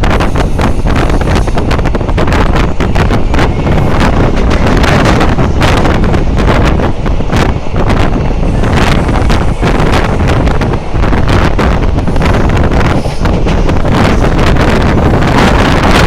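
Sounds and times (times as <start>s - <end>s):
train rushing and clattering: 0.0s - 16.0s
wind buffeting microphone: 0.0s - 16.0s.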